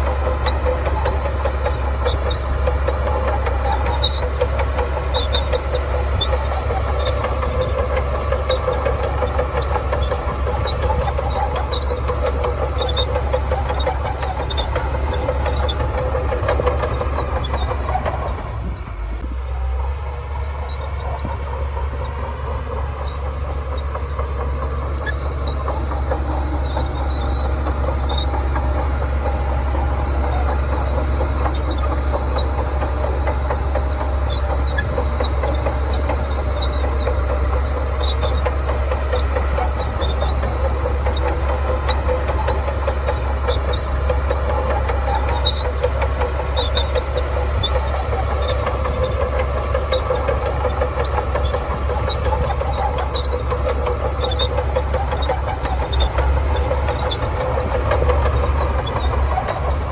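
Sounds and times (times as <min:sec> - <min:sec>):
bulldozer diesel engine: 0:00.0 - 0:59.9
metallic rattle of tracks: 0:00.0 - 0:59.9.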